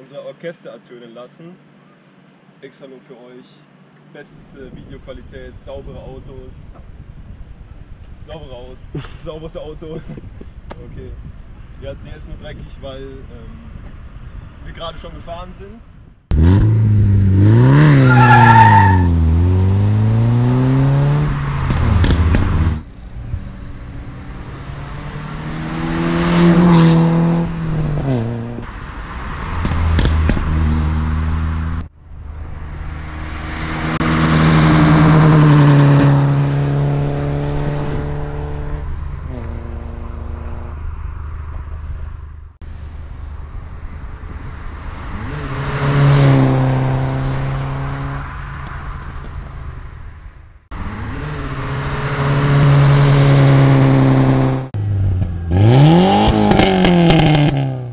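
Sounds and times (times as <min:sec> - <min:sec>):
car engine revving and accelerating: 0:16.3 - 0:42.0, 0:44.5 - 0:48.8, 0:50.7 - 0:57.9.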